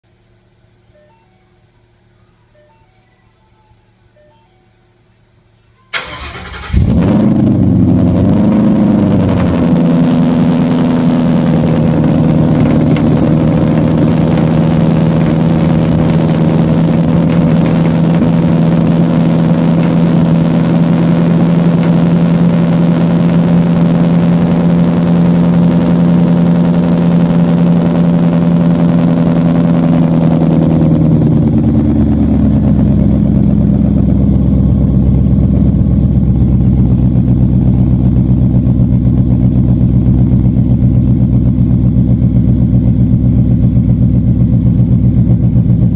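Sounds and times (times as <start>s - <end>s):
loud car engine idling: 6.0s - 45.9s.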